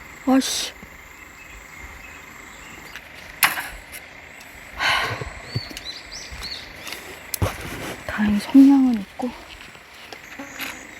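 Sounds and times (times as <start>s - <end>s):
insects chirring: 0.0s - 10.9s.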